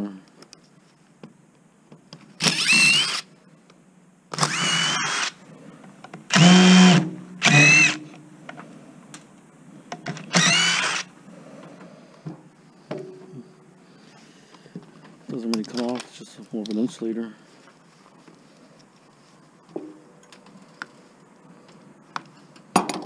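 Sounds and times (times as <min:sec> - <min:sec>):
power drill whining: 0:02.4 - 0:03.3, 0:04.3 - 0:05.4, 0:06.3 - 0:08.1, 0:10.2 - 0:11.1.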